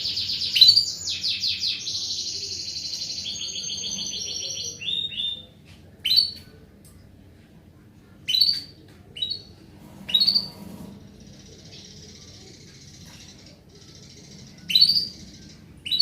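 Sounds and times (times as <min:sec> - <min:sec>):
canary chirps: 0:00.0 - 0:06.6, 0:08.2 - 0:16.0
high twittering: 0:11.1 - 0:16.0.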